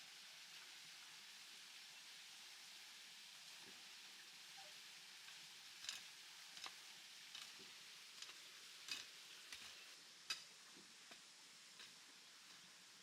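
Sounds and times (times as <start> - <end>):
low steady hiss: 0.0 - 13.0
faint light clicks and taps: 5.2 - 12.6.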